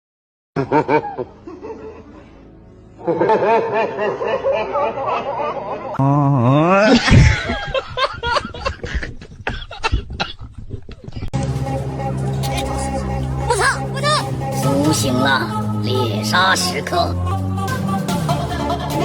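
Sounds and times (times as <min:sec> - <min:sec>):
snickering laughter: 0:00.6 - 0:02.3, 0:03.0 - 0:06.0, 0:06.7 - 0:11.3
music: 0:00.6 - 0:06.0, 0:11.4 - 0:19.0.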